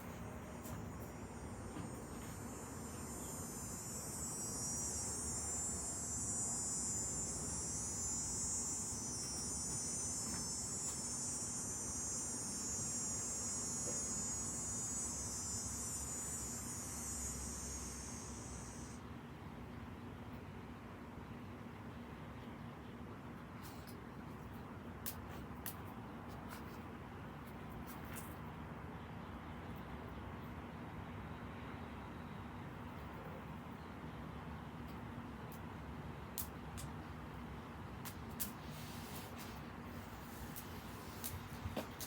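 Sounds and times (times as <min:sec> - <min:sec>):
insect high buzzing drone: 0:00.0 - 0:19.0.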